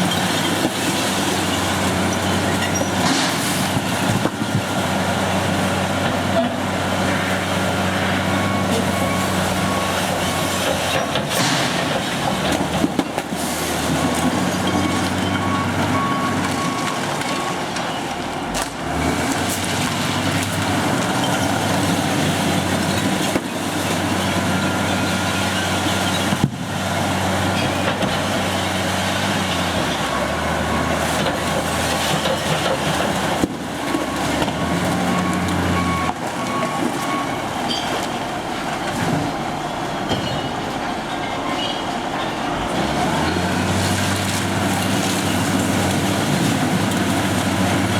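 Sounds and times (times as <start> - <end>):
reversing alarm beeping: 14.0 - 18.1, 34.0 - 38.1.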